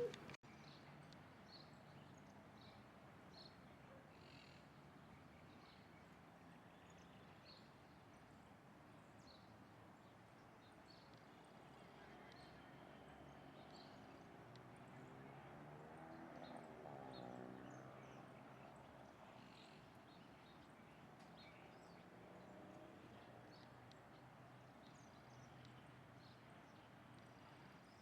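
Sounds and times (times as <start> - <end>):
faint high bird chirps: 0.0 - 0.4.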